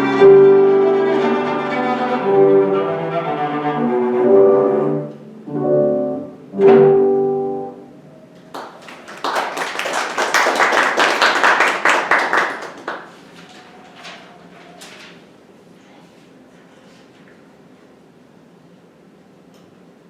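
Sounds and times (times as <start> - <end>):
audience applause: 8.5 - 13.6.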